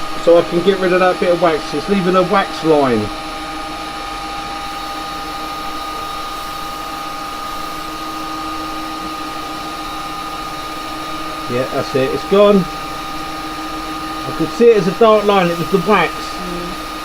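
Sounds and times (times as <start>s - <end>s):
wood lathe motor humming: 0.0s - 17.0s.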